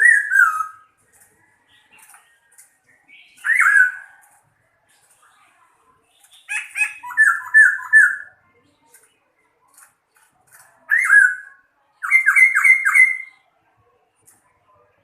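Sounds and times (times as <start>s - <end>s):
songbird singing: 0.0s - 13.6s.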